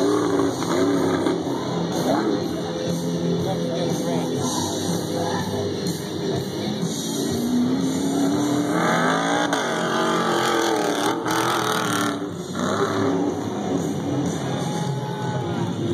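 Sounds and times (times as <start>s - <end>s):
racing truck engines revving: 0.0s - 15.9s.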